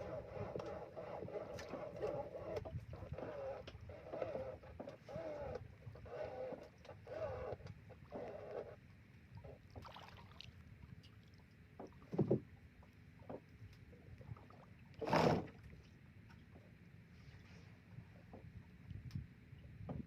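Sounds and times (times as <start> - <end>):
low rumble of water and hull: 0.0 - 20.0
small knocks on boat hull: 11.8 - 12.5.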